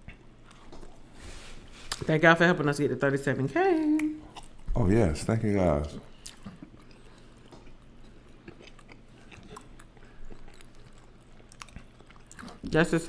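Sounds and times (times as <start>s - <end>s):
chewing and mouth sounds: 4.0s - 4.7s, 5.8s - 13.0s.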